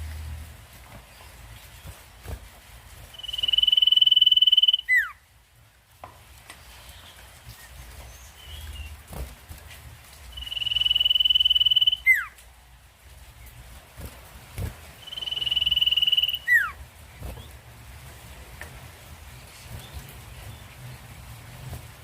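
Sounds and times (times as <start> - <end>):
bird trilled whistle song: 3.1 - 5.2, 10.3 - 12.4, 15.0 - 16.8.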